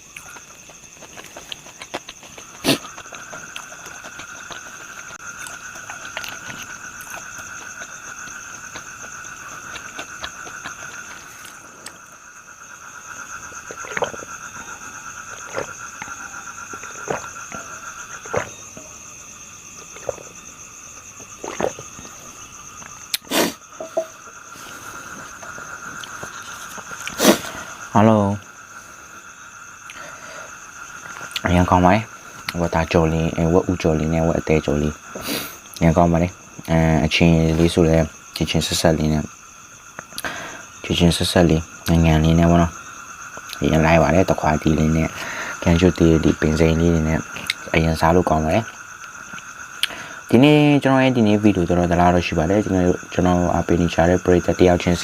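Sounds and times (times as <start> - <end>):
crunching crisp food: 0.0 - 12.2, 13.0 - 23.6
insects chirring: 0.0 - 55.0.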